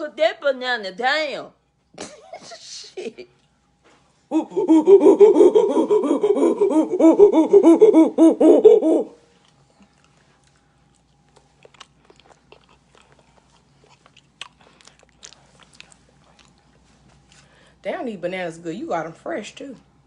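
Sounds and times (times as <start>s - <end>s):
wheezy rhythmic laughter: 2.0s - 3.4s, 4.3s - 9.1s
person chewing: 9.3s - 17.6s.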